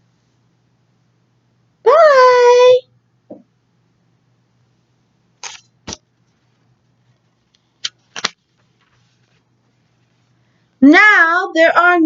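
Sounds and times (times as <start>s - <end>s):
book page turning: 5.4s - 10.3s.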